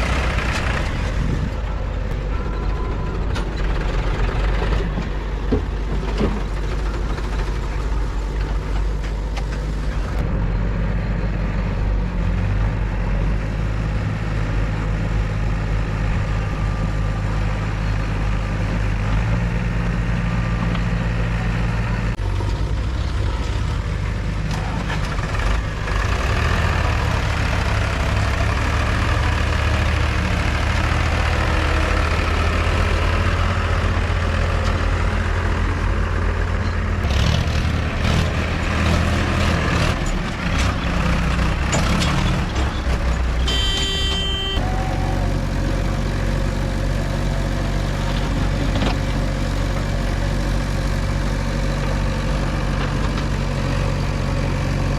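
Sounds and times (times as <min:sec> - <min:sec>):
diesel engine running: 0:00.0 - 0:54.9
knocks and clanks: 0:02.1 - 0:10.2, 0:38.7 - 0:44.4
short horn tone: 0:43.4 - 0:45.3.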